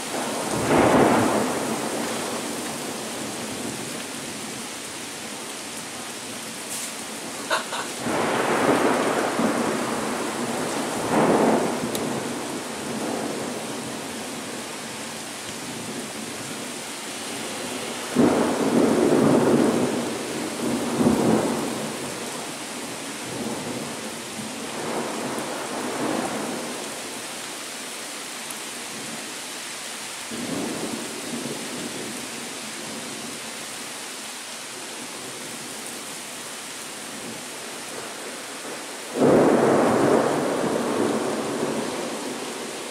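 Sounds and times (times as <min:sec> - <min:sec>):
steady rain: 0:00.0 - 0:42.9
thunder rumbling: 0:00.1 - 0:03.8, 0:07.1 - 0:14.1, 0:17.4 - 0:22.5, 0:38.6 - 0:42.7.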